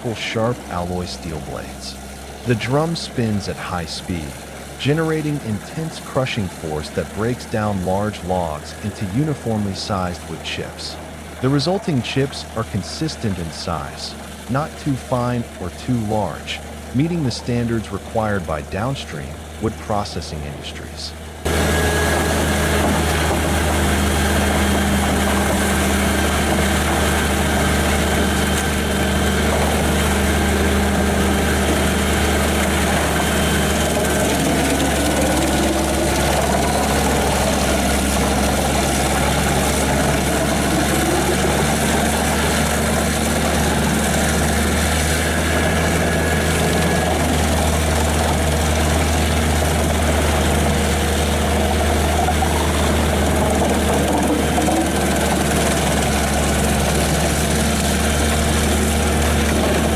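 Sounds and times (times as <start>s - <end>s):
wood chipper diesel engine humming: 0.0s - 59.9s.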